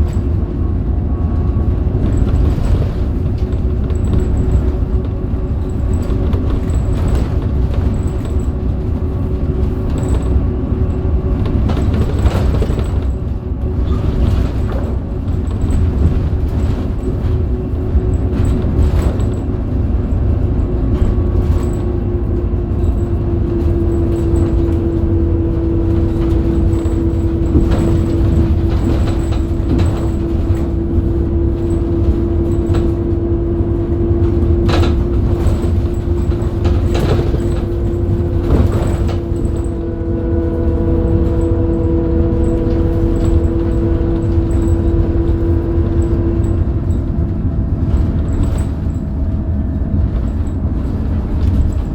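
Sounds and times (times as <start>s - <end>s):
body rattles and knocks: 0.0s - 51.9s
bus diesel engine rumble: 0.0s - 51.9s
steady whine: 24.5s - 51.9s.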